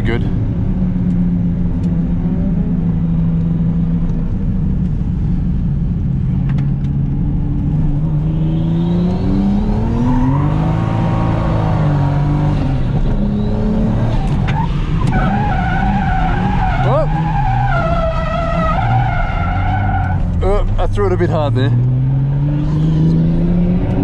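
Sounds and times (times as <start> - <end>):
turbocharged car engine revving: 7.6 - 24.0.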